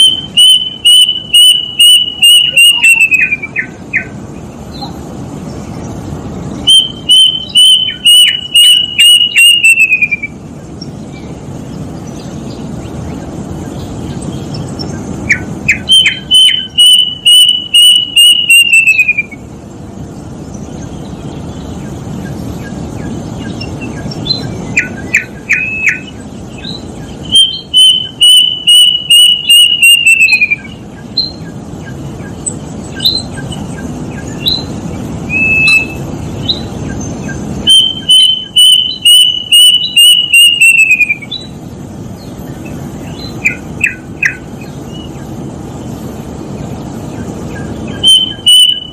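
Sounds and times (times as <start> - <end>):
cuckoo whistled song: 0.0 - 4.2, 6.6 - 10.4, 15.2 - 19.5, 23.4 - 34.7, 35.3 - 41.6, 43.1 - 45.1, 47.5 - 48.9.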